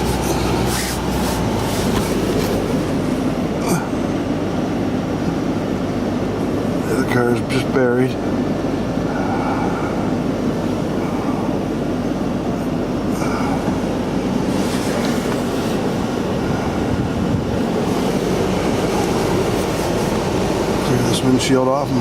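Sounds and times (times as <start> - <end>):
hissing scrapes: 0.0 - 3.0, 14.5 - 15.9
car engine idling: 0.0 - 22.0.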